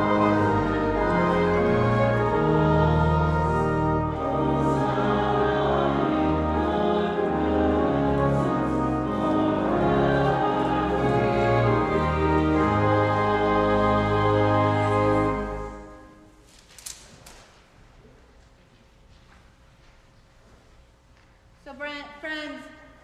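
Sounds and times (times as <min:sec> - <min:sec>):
choir singing a hymn: 0:00.0 - 0:16.4.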